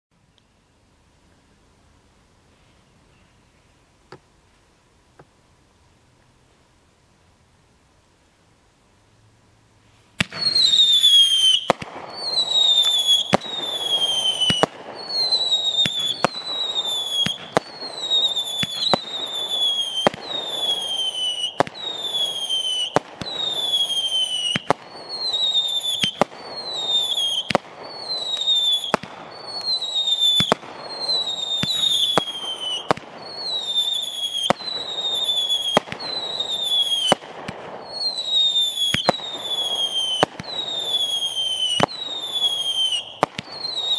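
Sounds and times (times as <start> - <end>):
steady hiss: 0.1 - 43.9
falling firework whistle: 10.2 - 43.9
firework bangs: 10.2 - 43.9.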